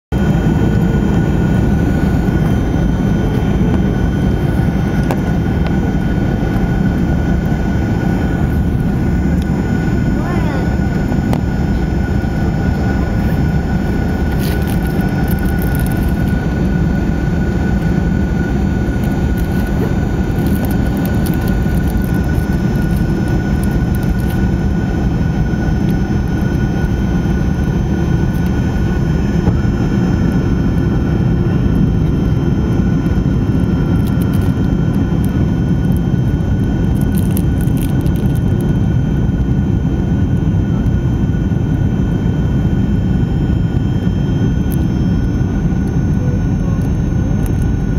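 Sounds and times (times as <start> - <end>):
airliner cabin roar: 0.1 - 47.9
high turbofan whine: 0.1 - 47.9.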